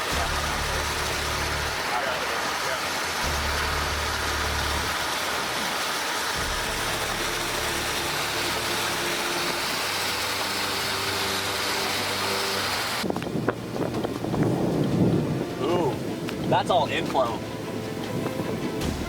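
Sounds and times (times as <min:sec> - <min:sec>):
road and wind noise: 0:00.7 - 0:19.0
car engine hum: 0:03.2 - 0:05.6, 0:06.3 - 0:15.4.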